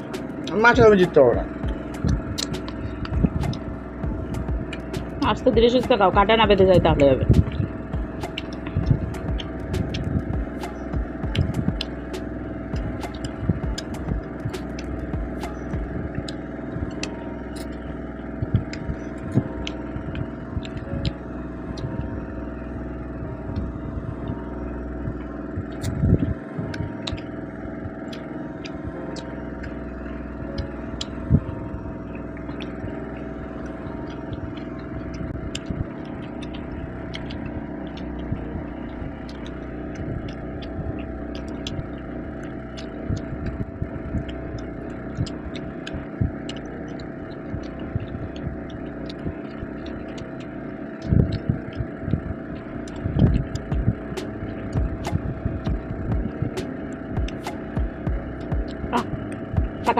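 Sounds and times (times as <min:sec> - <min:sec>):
background hum: 0:00.0 - 0:59.9
eating clicks and knocks: 0:52.8 - 0:54.0.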